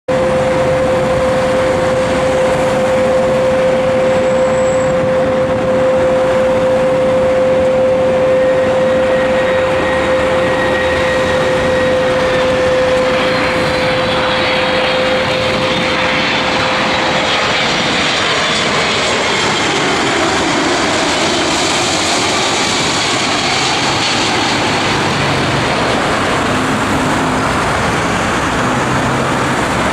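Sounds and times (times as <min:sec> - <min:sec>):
jet airliner engines: 0:00.1 - 0:29.9.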